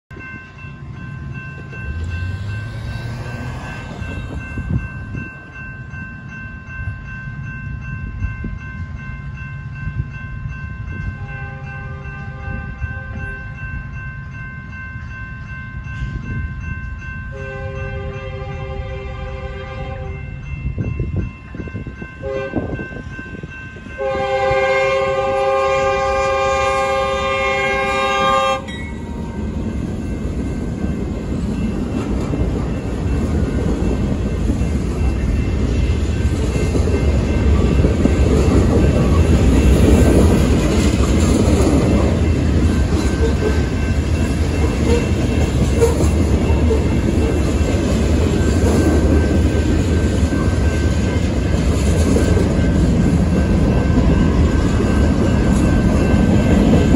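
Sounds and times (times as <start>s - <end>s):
faint crossing bell ringing: 0.1s - 56.9s
freight train rolling past: 0.1s - 56.9s
locomotive horn: 11.2s - 13.2s, 17.3s - 20.2s, 22.2s - 22.7s, 24.0s - 28.8s
wheels clickety-clack: 29.4s - 56.9s.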